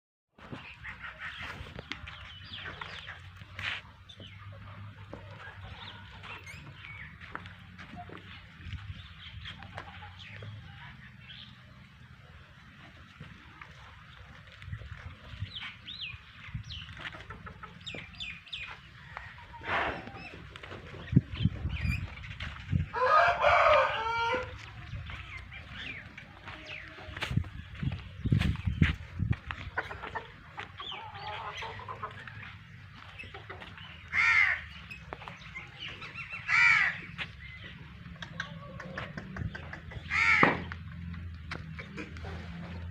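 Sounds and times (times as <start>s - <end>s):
chickens clucking: 0.4s - 42.9s
crow cawing: 34.1s - 34.6s, 36.5s - 37.0s, 40.1s - 40.6s.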